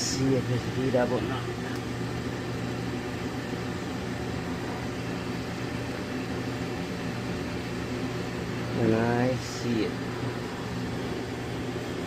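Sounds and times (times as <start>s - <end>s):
dryer motor and fan humming: 0.0s - 12.0s.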